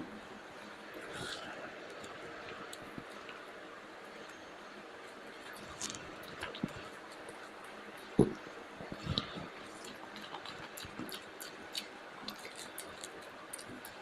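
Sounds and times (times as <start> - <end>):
person chewing rice: 5.4 - 14.0.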